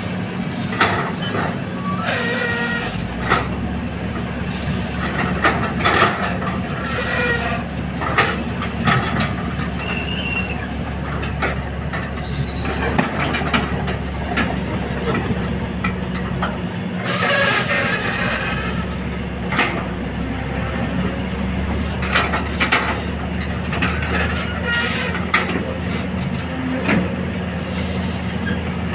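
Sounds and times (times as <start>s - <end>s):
excavator diesel engine drone: 0.0s - 28.9s
metallic clanks and knocks: 4.9s - 9.8s, 21.8s - 27.1s.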